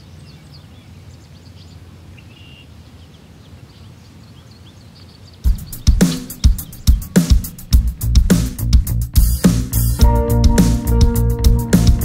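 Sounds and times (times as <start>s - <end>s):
faint bird chirps: 0.0s - 7.8s
band music with drums: 5.5s - 12.0s.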